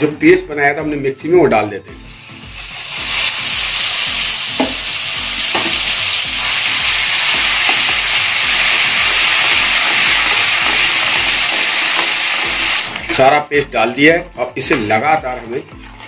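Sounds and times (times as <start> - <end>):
paste sizzling in hot oil: 2.0 - 13.3.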